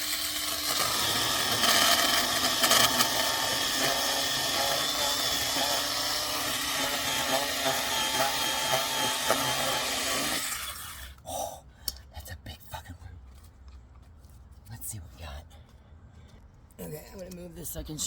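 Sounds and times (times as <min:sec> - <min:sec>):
chainsaw cutting through root: 0:00.0 - 0:11.2.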